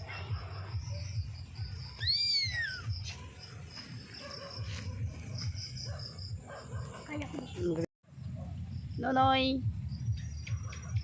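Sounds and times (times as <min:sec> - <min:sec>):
high insect trill: 0:00.1 - 0:07.8
animal call rising and falling: 0:02.0 - 0:02.8.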